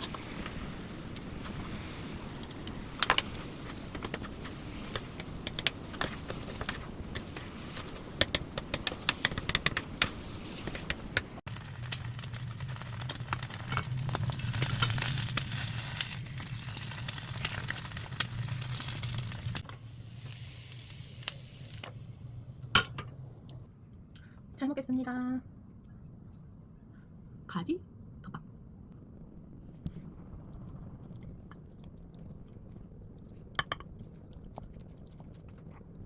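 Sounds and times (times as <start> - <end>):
low hum: 9.8 - 36.0
food sizzling in a pan: 11.5 - 22.1.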